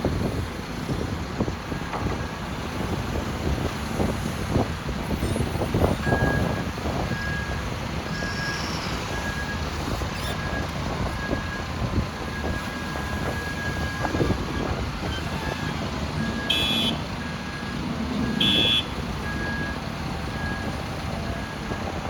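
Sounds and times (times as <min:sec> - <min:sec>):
excavator diesel engine under load: 0:00.0 - 0:22.0
reversing alarm beeping: 0:06.0 - 0:20.7.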